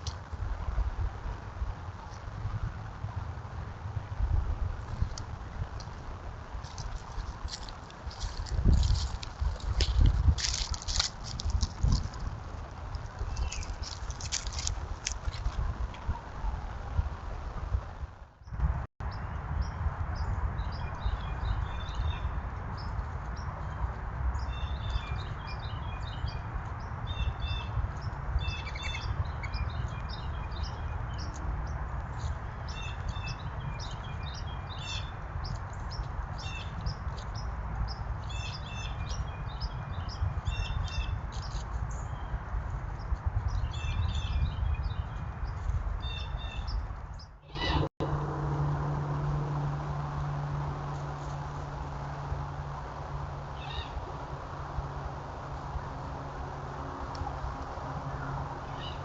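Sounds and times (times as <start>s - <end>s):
steady low rumble: 0.0s - 59.0s
small birds chirping: 6.6s - 15.5s, 18.4s - 47.9s.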